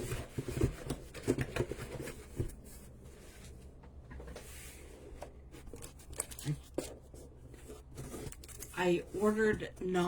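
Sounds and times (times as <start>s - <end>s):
packaging taps and rustles: 0.0s - 2.6s
faint low room hum: 0.0s - 10.0s.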